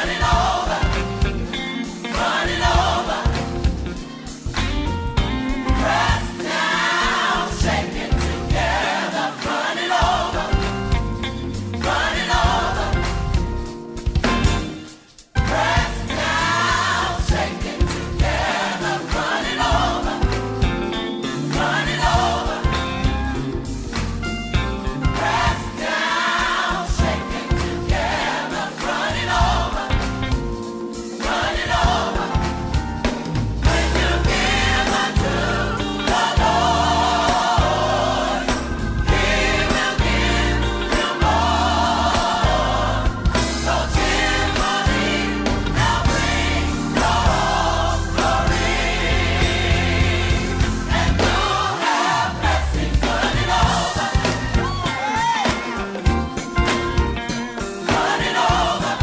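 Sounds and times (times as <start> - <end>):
gospel choir singing: 0.0 - 59.0
bass line: 10.1 - 14.8, 15.4 - 18.6, 21.9 - 25.7, 31.7 - 55.0.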